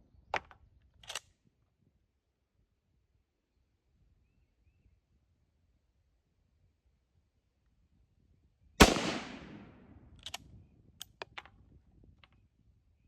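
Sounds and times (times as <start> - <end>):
rifle shot: 8.8 - 9.9.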